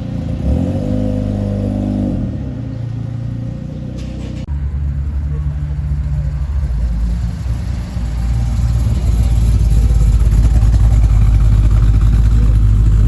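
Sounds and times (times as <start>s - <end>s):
car engine deep rumble: 0.0s - 13.0s.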